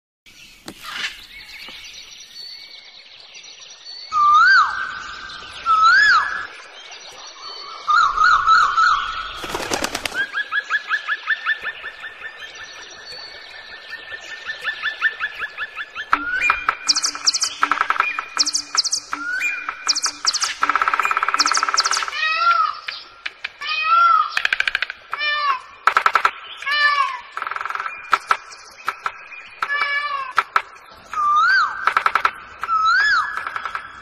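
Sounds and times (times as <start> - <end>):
pet birds calling and chirping: 11.2 - 33.9.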